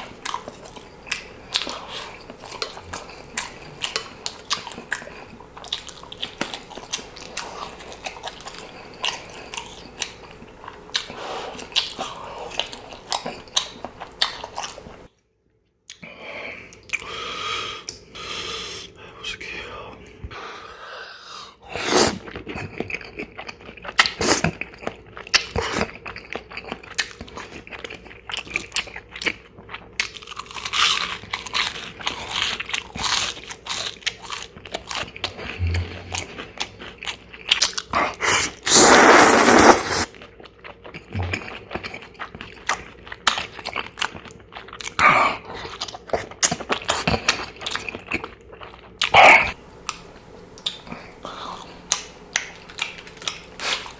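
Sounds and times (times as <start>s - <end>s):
person crunching food: 22.0s - 53.9s.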